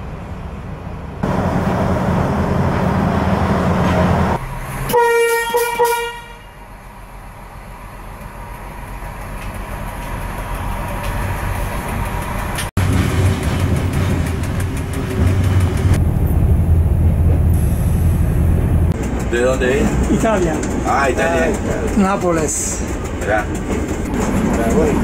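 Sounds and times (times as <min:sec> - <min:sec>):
low rumble of railcar running: 0:00.0 - 0:25.0
railcar engine and running noise: 0:00.0 - 0:25.0
train horn blasts: 0:04.8 - 0:06.6.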